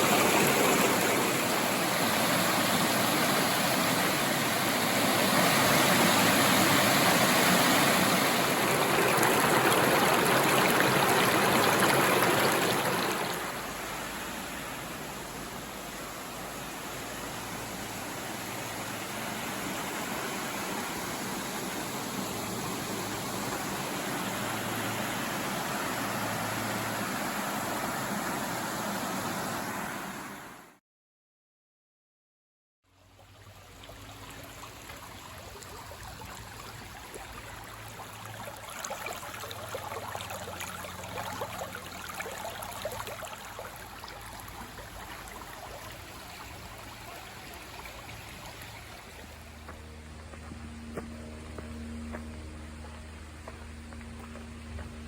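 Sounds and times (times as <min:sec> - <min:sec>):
waterfall and river rushing: 0:00.0 - 0:30.7.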